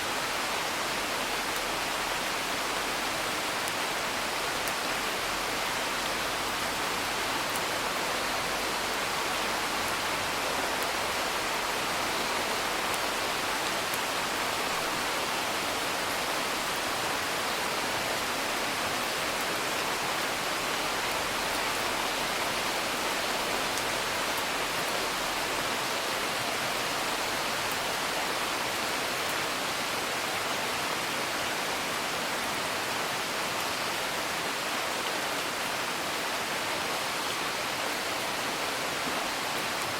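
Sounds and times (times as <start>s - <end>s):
rain hiss: 0.0s - 39.9s.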